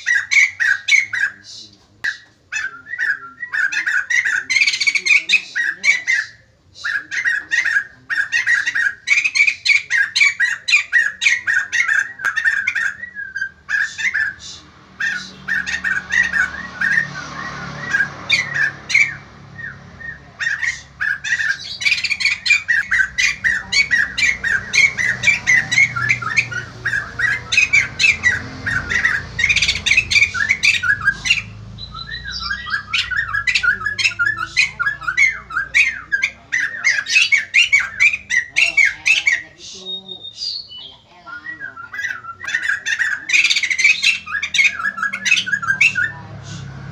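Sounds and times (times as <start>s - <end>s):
bird squawking chatter: 0.0s - 46.9s.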